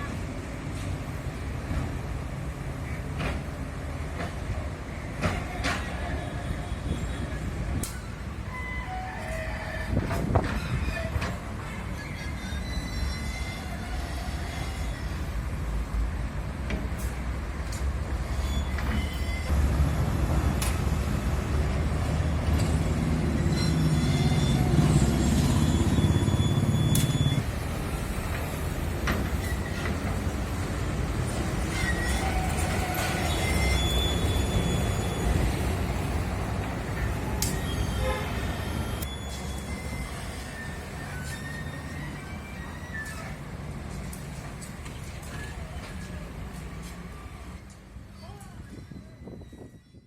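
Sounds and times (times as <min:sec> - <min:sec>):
heavy vehicles rumbling: 0:00.0 - 0:49.8
road machinery: 0:00.0 - 0:50.0
faint high squeals: 0:04.9 - 0:15.4, 0:18.2 - 0:19.5, 0:23.4 - 0:27.5, 0:31.6 - 0:35.7, 0:37.0 - 0:43.6, 0:47.1 - 0:50.0.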